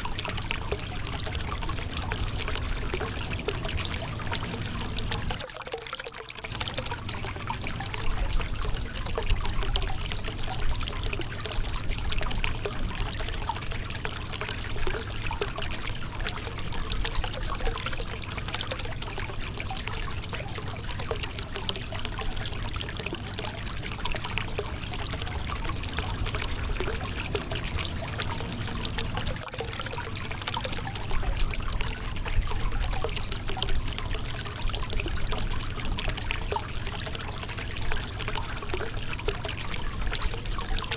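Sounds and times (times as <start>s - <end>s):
river water over rocks: 0.0s - 6.1s, 21.4s - 40.9s.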